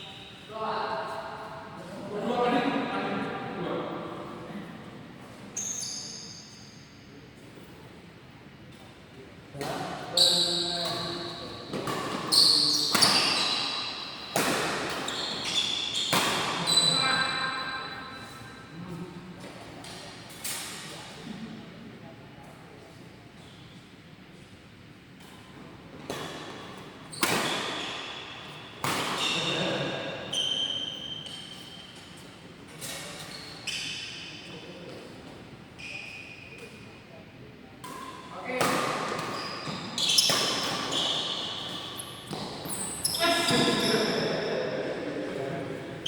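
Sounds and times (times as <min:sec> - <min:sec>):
shoes squeaking on court floor: 0:05.6 - 0:06.9, 0:10.1 - 0:18.6, 0:25.2 - 0:35.1, 0:35.8 - 0:36.9, 0:37.9 - 0:44.6.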